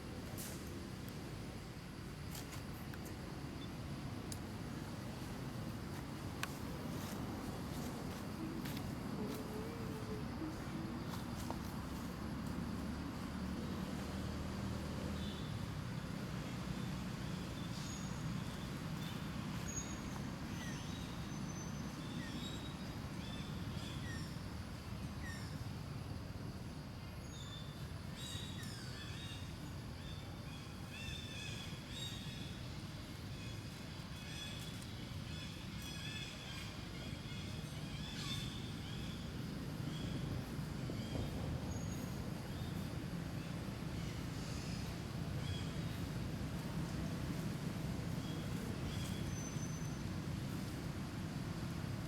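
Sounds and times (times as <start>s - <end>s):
distant traffic rumble: 0.0s - 23.9s, 36.7s - 52.0s.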